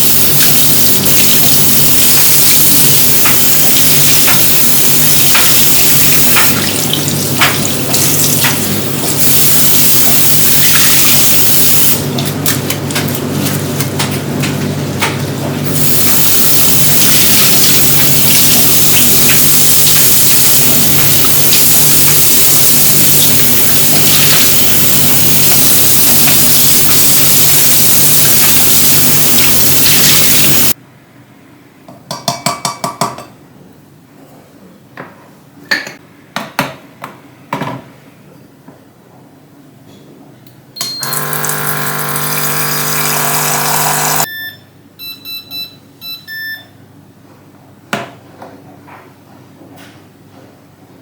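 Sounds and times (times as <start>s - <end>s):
coffee machine rushing hum: 2.6s - 30.8s, 40.9s - 44.3s
short electronic beeps: 40.8s - 41.4s, 42.2s - 46.8s.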